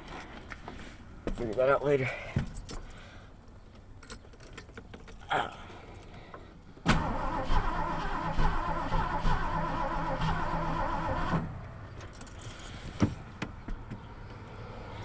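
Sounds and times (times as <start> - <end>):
starter cranking engine: 6.9 - 11.4.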